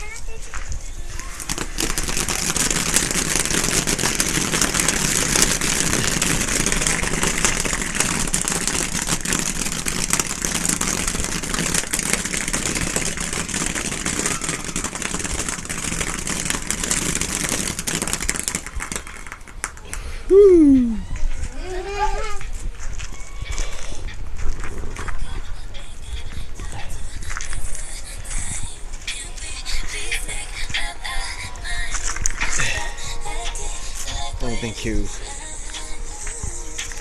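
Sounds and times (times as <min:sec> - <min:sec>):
firework hissing and crackling: 0:01.1 - 0:21.0.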